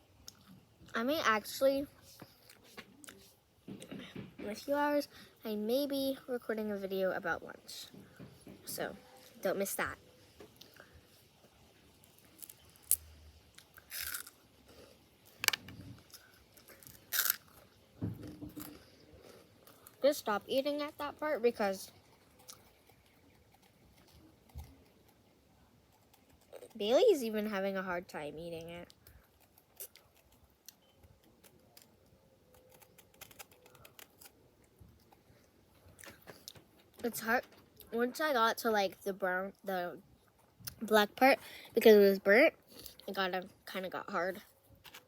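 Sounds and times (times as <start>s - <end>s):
crunchy food being chewed: 11.5s - 20.0s, 21.9s - 26.8s, 28.8s - 36.6s.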